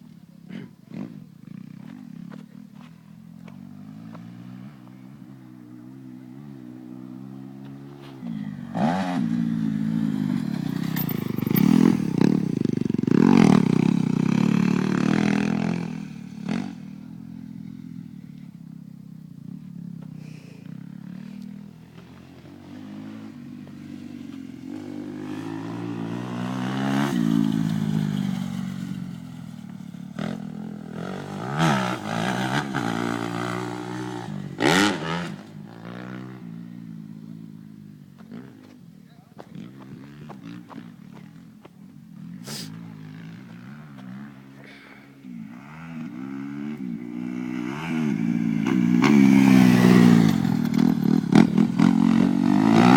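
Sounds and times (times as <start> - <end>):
motocross bike engine revving: 5.9 - 17.5, 22.2 - 36.7, 42.2 - 52.9.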